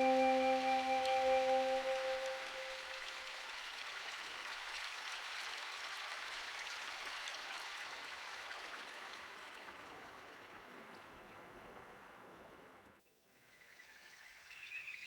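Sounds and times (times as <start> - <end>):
sustained tone: 0.0 - 3.0
steady rain patter: 0.0 - 12.8.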